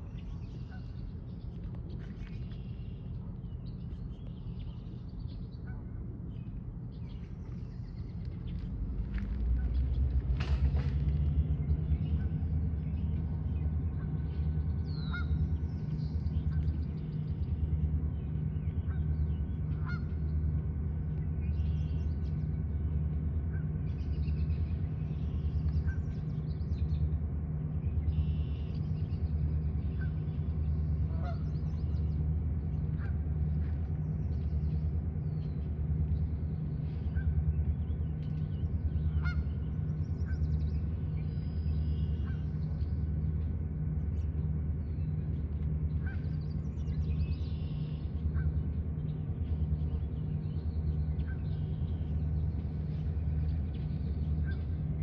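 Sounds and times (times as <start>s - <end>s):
steady low pulsing hum: 0.0s - 55.0s.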